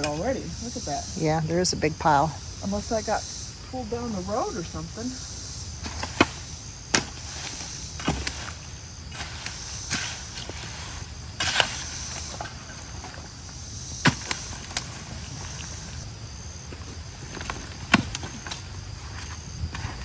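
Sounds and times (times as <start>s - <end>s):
insects chorus: 0.0s - 20.0s
debris knocking and snapping: 14.0s - 15.8s.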